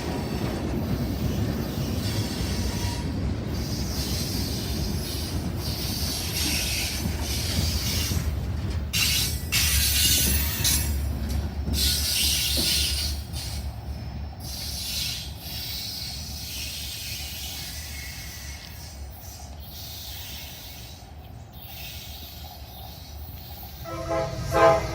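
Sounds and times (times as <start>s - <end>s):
freight train rolling on rails: 0.0s - 24.9s
wheels squealing and hissing: 14.4s - 24.9s.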